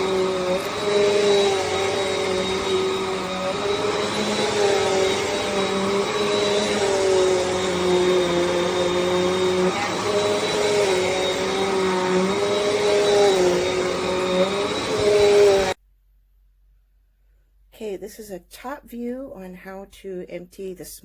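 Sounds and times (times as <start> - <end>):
vacuum cleaner running: 0.0 - 15.8.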